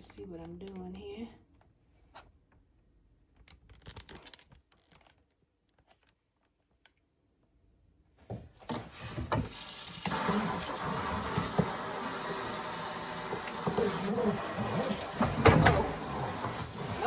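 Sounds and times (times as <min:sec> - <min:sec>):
water running into tray: 0:09.3 - 0:17.0.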